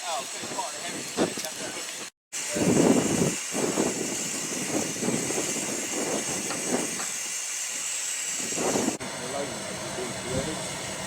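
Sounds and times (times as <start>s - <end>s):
steam locomotive hissing: 0.0s - 11.0s
exhaust chuffs: 8.5s - 11.0s.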